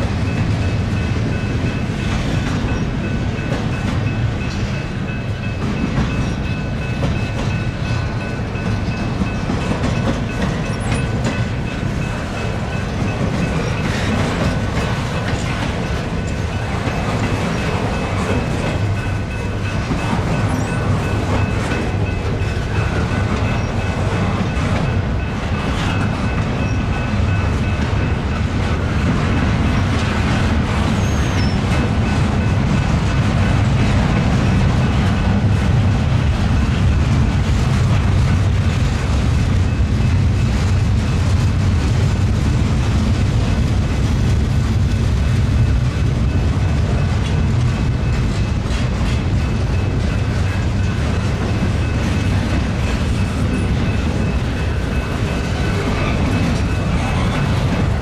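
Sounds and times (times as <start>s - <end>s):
freight train rumbling past: 0.0s - 58.0s.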